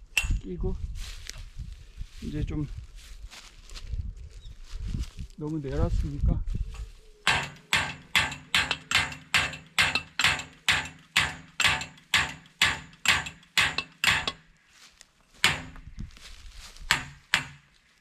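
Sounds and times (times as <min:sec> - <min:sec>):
hammer striking steel pipe: 0:07.3 - 0:14.4, 0:15.4 - 0:15.9, 0:16.9 - 0:17.7.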